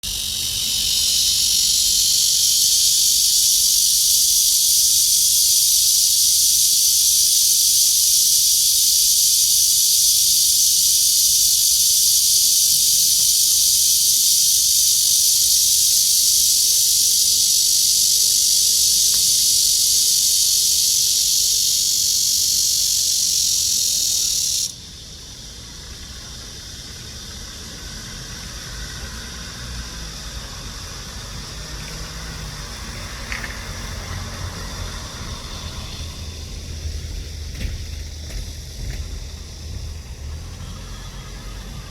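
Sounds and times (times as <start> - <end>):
cicada buzzing: 0.0 - 41.9
faint low rumble: 30.9 - 41.9.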